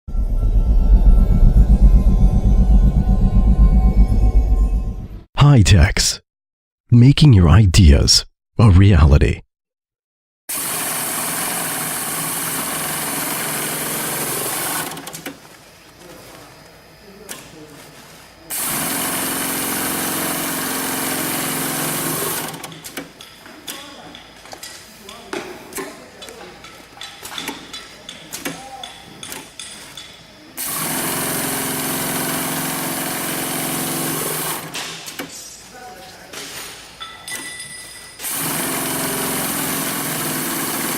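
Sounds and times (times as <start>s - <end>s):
industrial sewing machine running: 10.5s - 15.1s, 18.5s - 22.6s, 30.6s - 34.7s, 38.2s - 40.9s.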